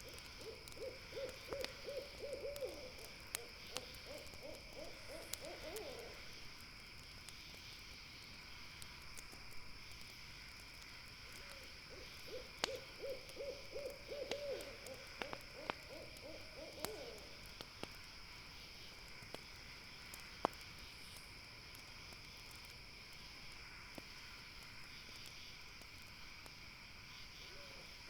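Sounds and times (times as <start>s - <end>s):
owl hooting: 0.0s - 6.2s, 11.9s - 17.4s
campfire crackling and popping: 0.0s - 28.0s
night insects droning: 0.0s - 28.0s.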